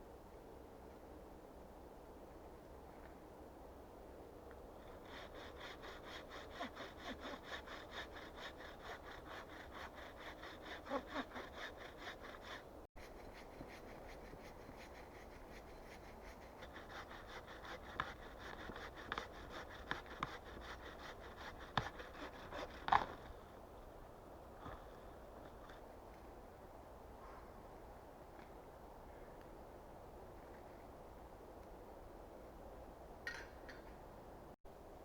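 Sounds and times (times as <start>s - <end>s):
hand saw cutting wood: 4.8s - 23.4s.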